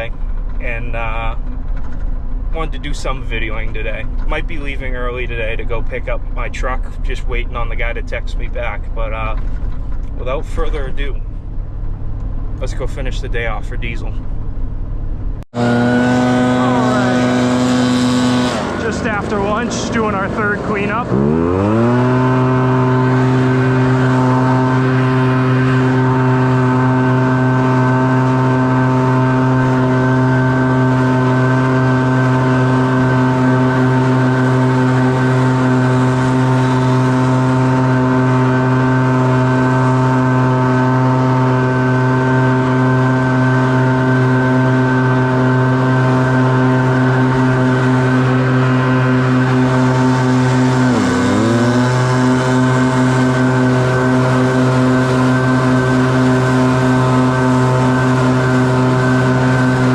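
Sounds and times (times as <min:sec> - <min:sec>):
leaf blower engine revving: 0:15.5 - 0:59.9.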